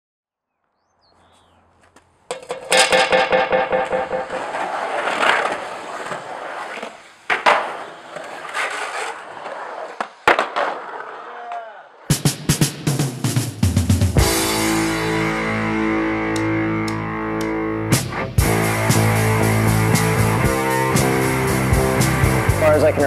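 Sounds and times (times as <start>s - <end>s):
skateboard impacts: 1.2s - 12.7s
skateboard wheels rattling on concrete: 1.8s - 12.0s.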